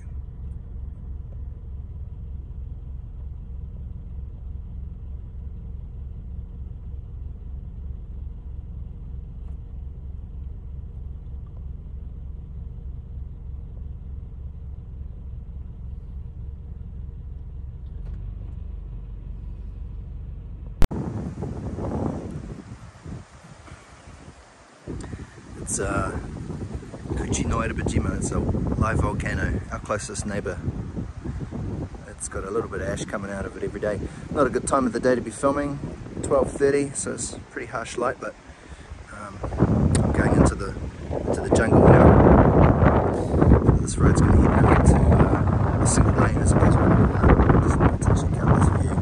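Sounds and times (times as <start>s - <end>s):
car rumble from inside cabin: 0.0s - 49.0s
wind buffeting microphone: 20.9s - 49.0s.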